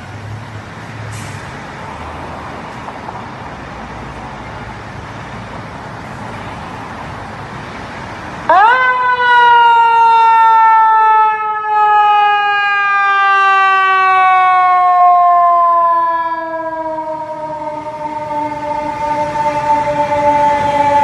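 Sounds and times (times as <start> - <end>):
fire truck siren: 5.6 - 21.0.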